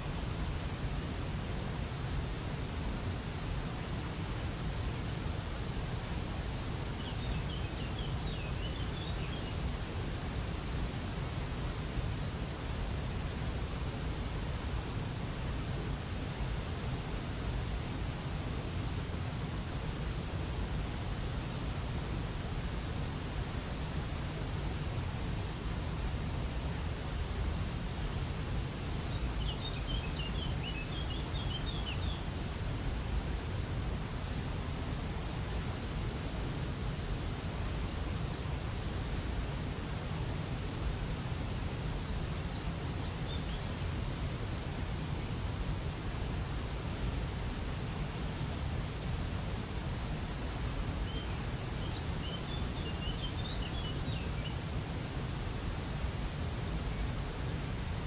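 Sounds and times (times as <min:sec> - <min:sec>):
songbird chirping: 0:29.0 - 0:32.2.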